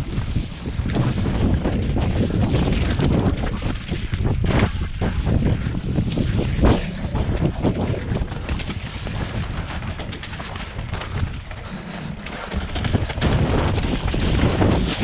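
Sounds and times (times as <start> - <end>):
wind buffeting microphone: 0.0 - 15.0
small clicks and rattles: 10.0 - 15.0.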